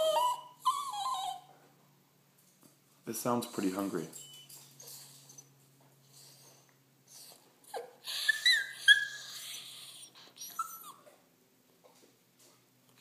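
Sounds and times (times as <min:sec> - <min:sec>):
dog whining and whimpering: 0:00.0 - 0:01.5, 0:04.8 - 0:05.6, 0:07.1 - 0:11.1.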